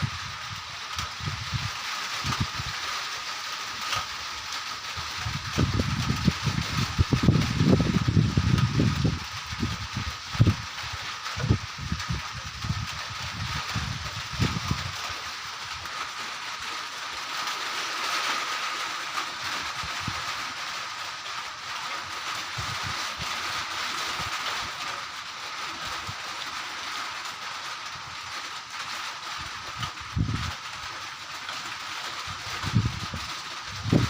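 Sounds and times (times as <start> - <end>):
wind buffeting microphone: 0.0 - 2.8, 4.9 - 15.9, 22.4 - 24.4, 29.4 - 30.7, 32.3 - 34.0
rain hissing: 0.0 - 34.0.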